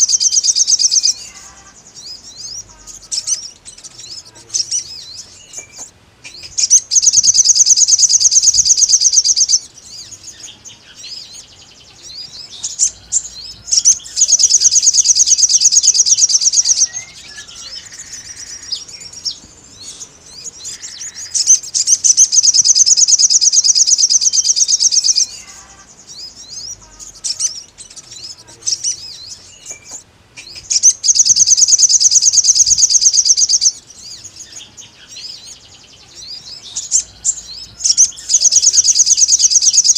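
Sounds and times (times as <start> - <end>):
songbird soft chirps: 0.0 - 39.9
songbird rapid high trills: 6.2 - 10.4, 12.1 - 29.6, 30.4 - 34.4, 36.2 - 39.9.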